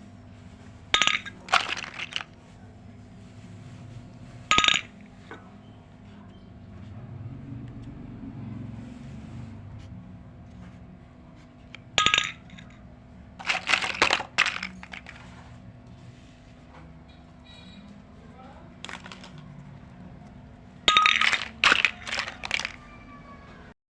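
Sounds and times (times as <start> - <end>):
toy kitchen pieces clinking: 1.0 - 2.4, 4.5 - 5.4, 11.8 - 12.8, 13.4 - 15.5, 18.8 - 19.7, 20.9 - 23.0.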